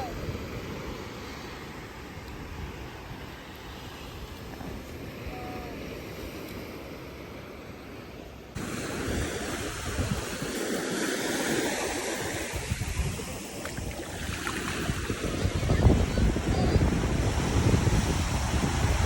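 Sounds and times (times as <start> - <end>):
wind buffeting microphone: 8.6 - 10.8, 11.6 - 19.0
ocean surf rushing: 8.6 - 19.0.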